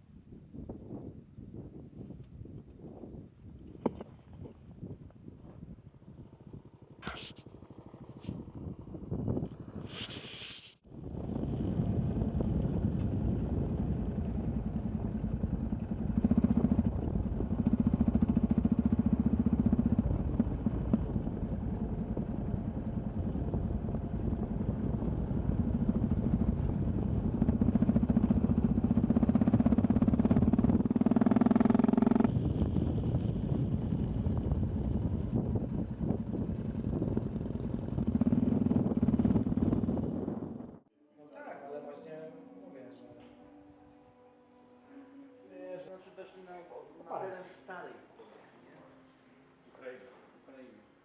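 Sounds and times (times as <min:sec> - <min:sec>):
motorcycle engine accelerating: 0:10.9 - 0:40.8.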